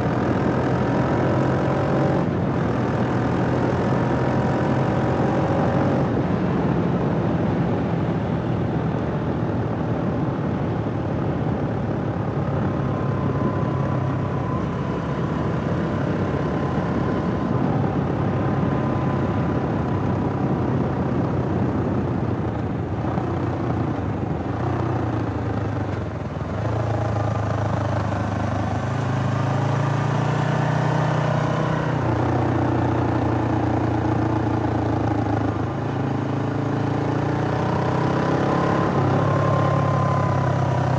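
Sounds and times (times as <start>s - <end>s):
motorcycle engine running: 11.4s - 40.9s.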